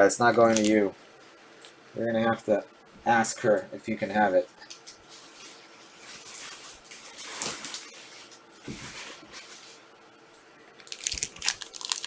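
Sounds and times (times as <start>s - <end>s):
plastic wrapping crinkling: 0.4s - 0.8s, 4.6s - 9.8s, 10.8s - 12.0s
packaging rustling: 4.7s - 9.8s, 10.8s - 12.0s.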